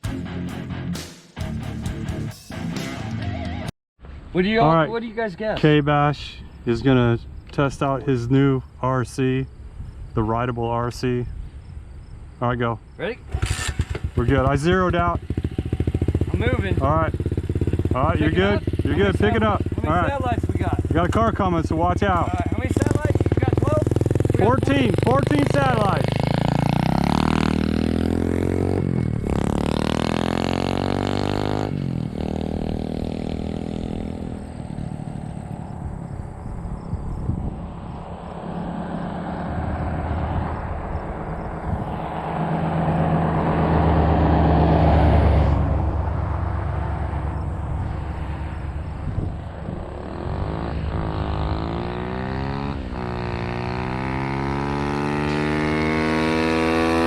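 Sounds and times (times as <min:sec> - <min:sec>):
dirt bike engine accelerating: 0:13.2 - 0:57.0.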